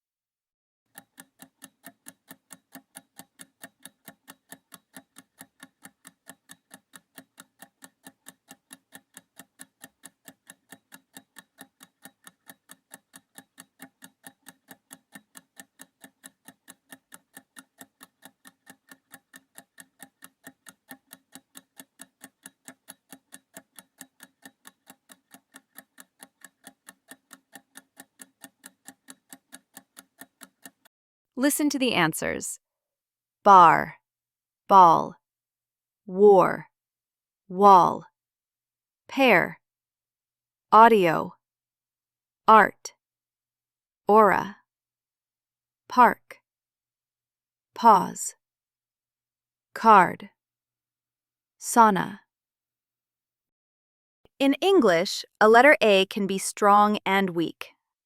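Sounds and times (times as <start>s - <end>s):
clock ticking: 0.9s - 32.2s.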